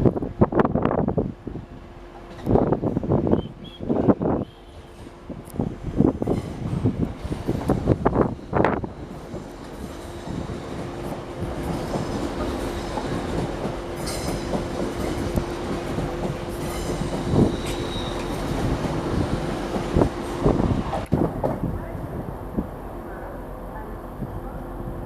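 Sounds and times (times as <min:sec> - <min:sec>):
train whine and rumble: 0:00.0 - 0:25.0
high wheel squeals: 0:17.3 - 0:18.5.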